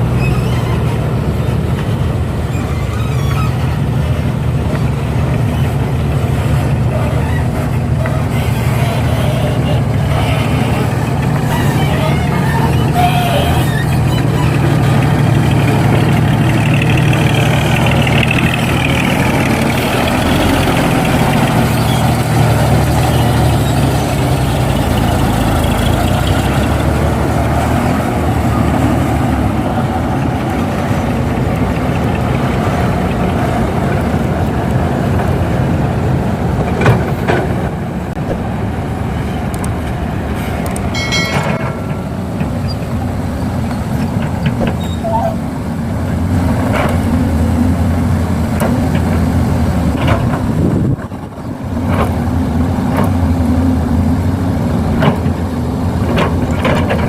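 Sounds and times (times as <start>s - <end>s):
heavy diesel engines running: 0.0s - 57.0s
metallic clinks: 40.9s - 42.9s.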